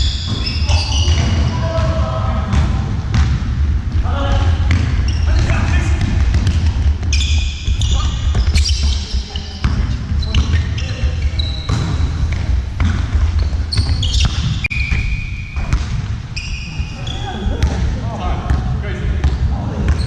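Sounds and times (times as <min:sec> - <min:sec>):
shoes squeaking on floor: 0:00.0 - 0:01.7, 0:04.8 - 0:05.8, 0:06.5 - 0:12.5, 0:13.2 - 0:17.6
basketball bouncing: 0:00.0 - 0:16.4, 0:17.6 - 0:17.9
players calling out: 0:00.2 - 0:02.9.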